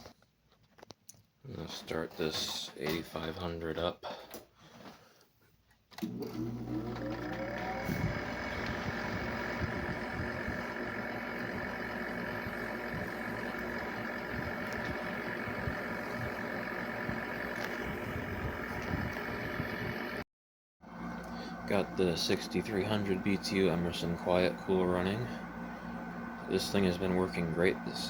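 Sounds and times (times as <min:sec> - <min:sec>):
air conditioner fan whine: 0:06.6 - 0:20.2, 0:20.9 - 0:28.0
air conditioner hum: 0:07.2 - 0:20.2, 0:21.1 - 0:28.0.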